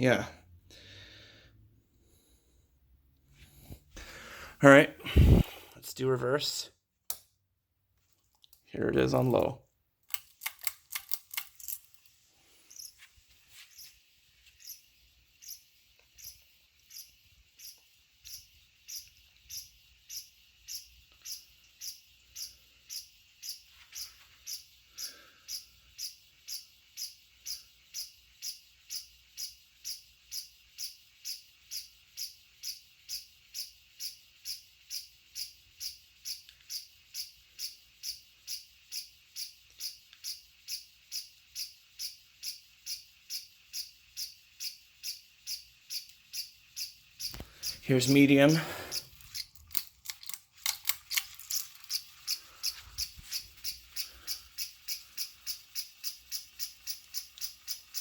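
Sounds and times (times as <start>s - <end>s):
faint fan hum: 0.0s - 58.0s
ceiling fan ticking: 14.6s - 58.0s.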